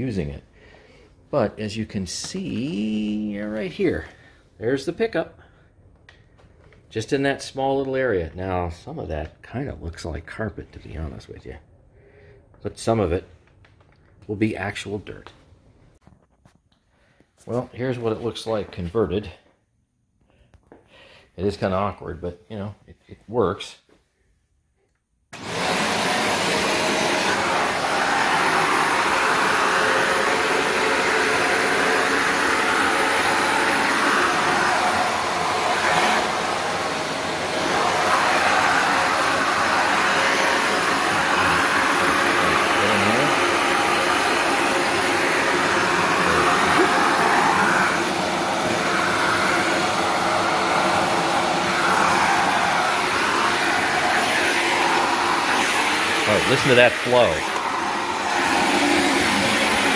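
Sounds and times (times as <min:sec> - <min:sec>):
vacuum cleaner running: 0:01.4 - 0:04.3, 0:25.4 - 0:59.9.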